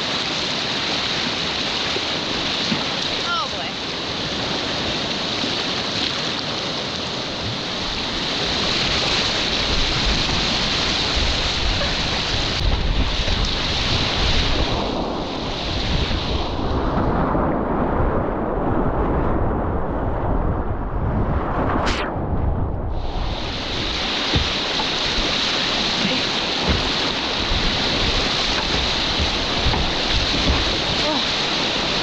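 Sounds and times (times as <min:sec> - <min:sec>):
river rapids rushing: 0:00.0 - 0:16.2, 0:23.2 - 0:32.0
wind rumbling on microphone: 0:00.0 - 0:32.0.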